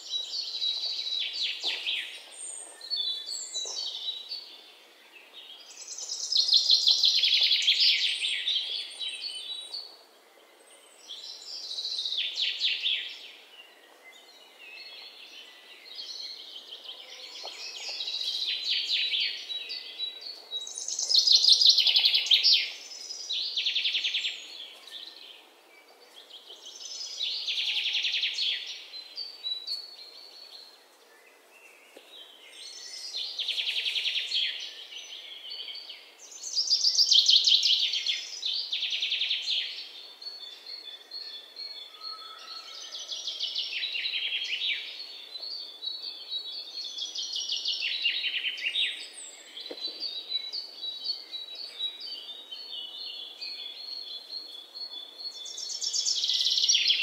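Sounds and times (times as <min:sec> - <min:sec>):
outdoor background hiss: 0:00.0 - 0:41.8, 0:43.2 - 0:57.0
songbirds singing trills: 0:00.0 - 0:57.0.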